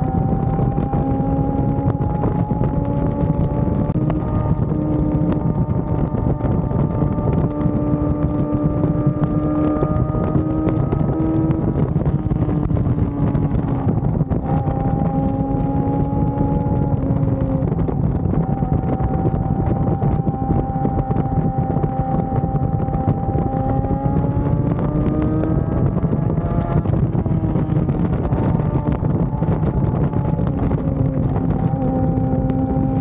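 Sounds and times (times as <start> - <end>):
motorcycle engine cruising: 0.0 - 33.0
wind buffeting microphone: 0.0 - 33.0.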